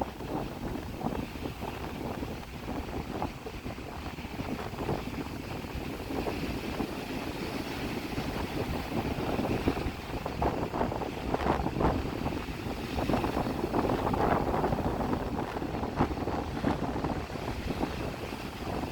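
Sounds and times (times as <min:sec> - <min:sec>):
wind buffeting microphone: 0:00.0 - 0:18.9
sea waves breaking: 0:05.4 - 0:18.9.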